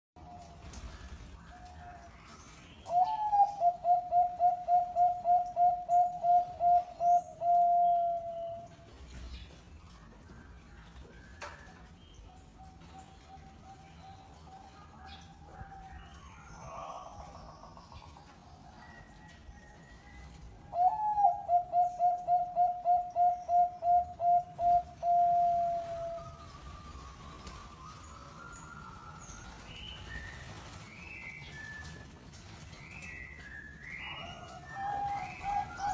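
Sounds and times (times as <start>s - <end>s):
dove cooing: 2.9s - 8.7s, 20.7s - 26.6s, 34.1s - 35.9s.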